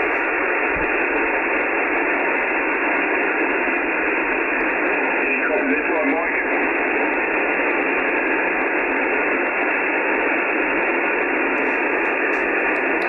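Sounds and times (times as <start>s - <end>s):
radio receiver hiss: 0.0s - 13.0s.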